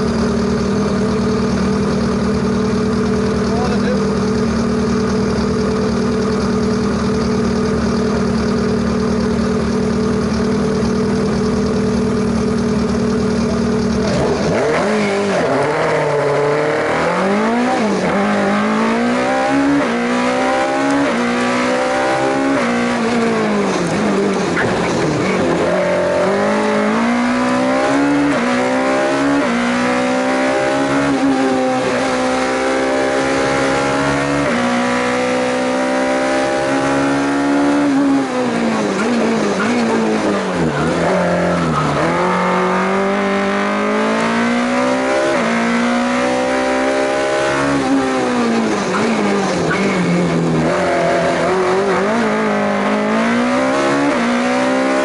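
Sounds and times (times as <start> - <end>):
car engine revving: 0.0 - 55.0
car accelerating through gears: 13.8 - 55.0.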